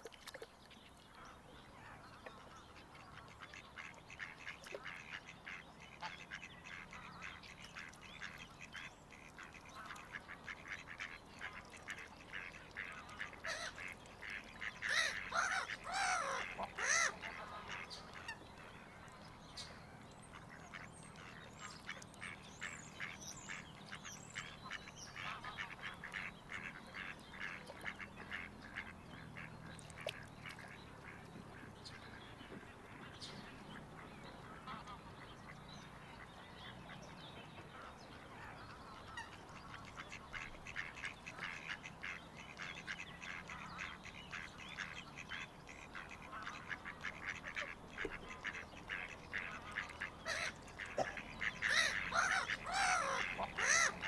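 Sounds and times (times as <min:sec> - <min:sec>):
waterfowl calling: 0:01.2 - 0:18.6, 0:37.8 - 0:54.0.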